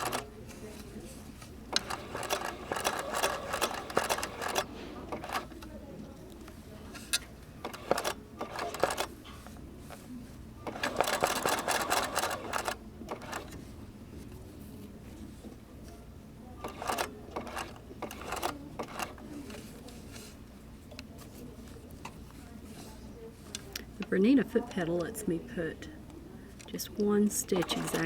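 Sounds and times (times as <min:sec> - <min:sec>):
sewing machine stitching: 0:00.0 - 0:00.3, 0:01.7 - 0:05.6, 0:07.6 - 0:09.1, 0:10.6 - 0:13.6, 0:16.6 - 0:19.6, 0:27.4 - 0:28.0.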